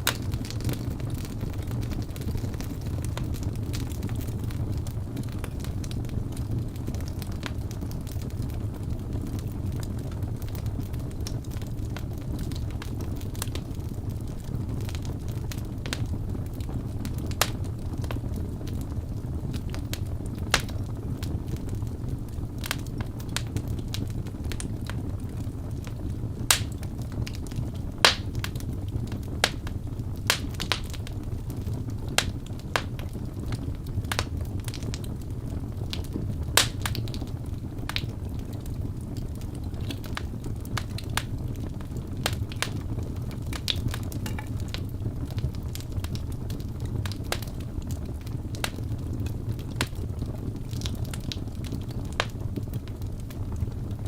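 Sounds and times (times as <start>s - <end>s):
crackling and popping logs: 0.0s - 54.0s
fire burning in a fireplace: 0.0s - 54.0s.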